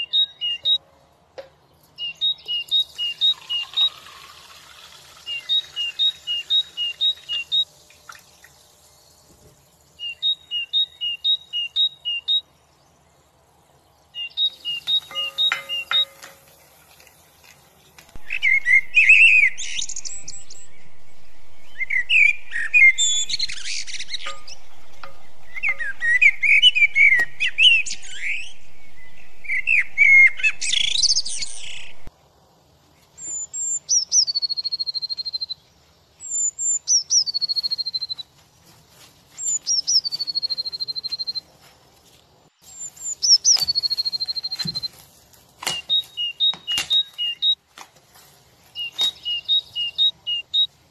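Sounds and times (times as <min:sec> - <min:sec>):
birds chirping warbles: 0:00.0 - 0:32.1, 0:32.9 - 0:41.6, 0:42.6 - 0:47.6, 0:48.5 - 0:50.9
bird whistle calls: 0:14.2 - 0:16.2, 0:18.2 - 0:32.1, 0:42.7 - 0:45.0, 0:45.6 - 0:47.6, 0:48.8 - 0:50.7.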